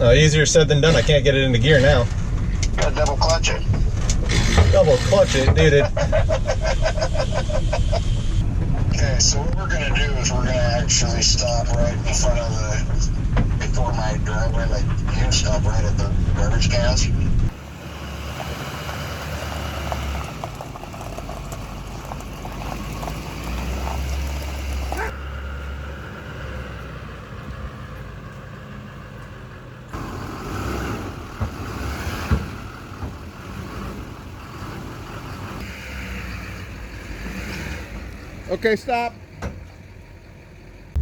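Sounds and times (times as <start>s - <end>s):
heavy truck rumbling: 0.0s - 41.0s.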